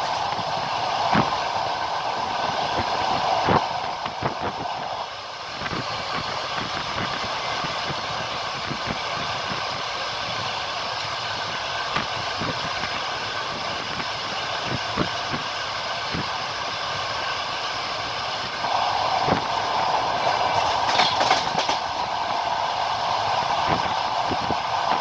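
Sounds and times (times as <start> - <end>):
train wheels rolling over rails: 0.0 - 25.0
clicks over rail joints: 20.0 - 22.1.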